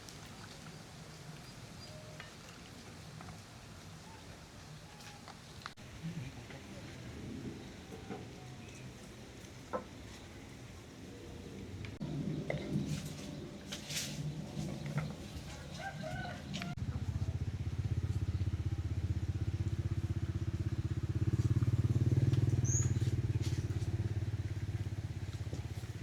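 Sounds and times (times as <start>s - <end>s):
passing motorbike engine: 16.1s - 26.0s.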